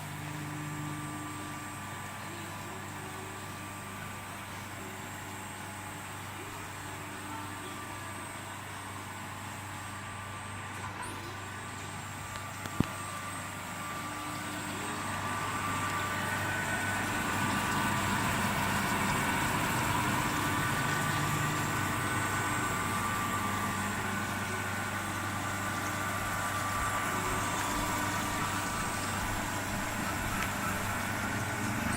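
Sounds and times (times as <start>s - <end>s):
knife grinder motor hum: 0.0s - 31.9s.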